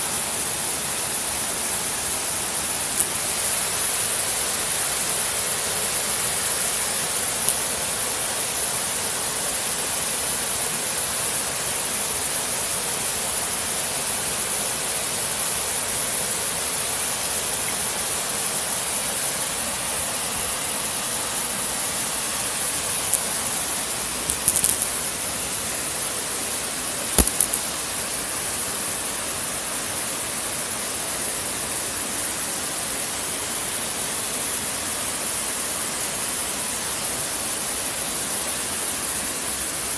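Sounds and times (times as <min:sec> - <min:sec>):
constant high hiss: 0:00.0 - 0:39.9
flowing river rushing: 0:00.0 - 0:39.9
short sharp clicks: 0:27.2 - 0:27.7.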